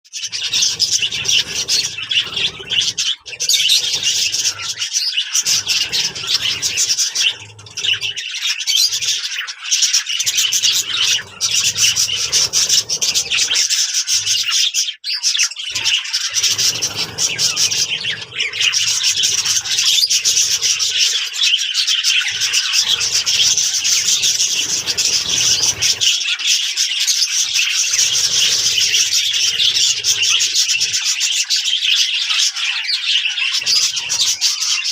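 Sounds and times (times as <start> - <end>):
budgerigars chattering and warbling: 0.1 - 34.9.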